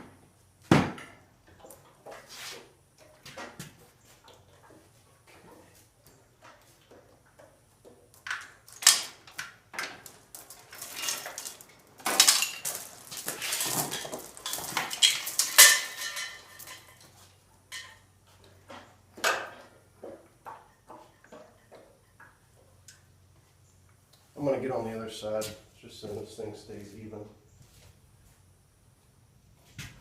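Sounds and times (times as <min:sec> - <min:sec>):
metal tools clanking and rattling: 0:08.2 - 0:18.1.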